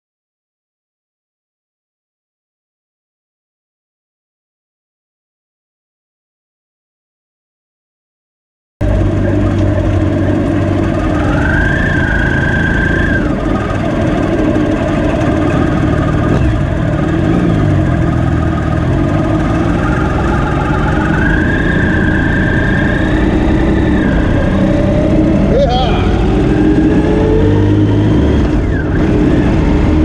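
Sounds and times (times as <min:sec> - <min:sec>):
high whine: 0:08.8 - 0:30.0
motorcycle engine running: 0:08.8 - 0:30.0.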